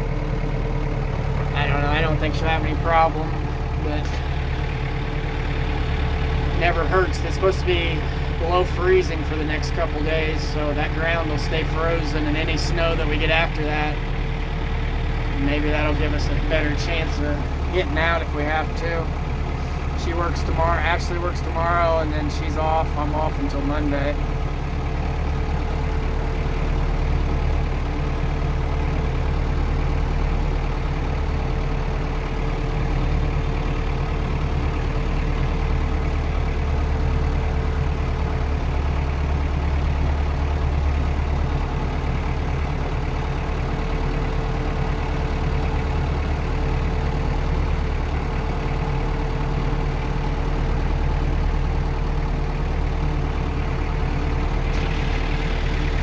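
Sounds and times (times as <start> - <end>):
tractor engine rumbling: 0.0 - 56.0.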